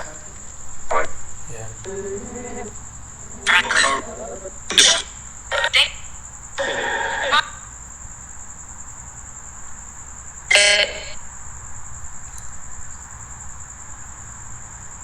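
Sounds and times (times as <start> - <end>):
crickets chirping: 0.0 - 15.0
short loud honk: 10.5 - 11.1.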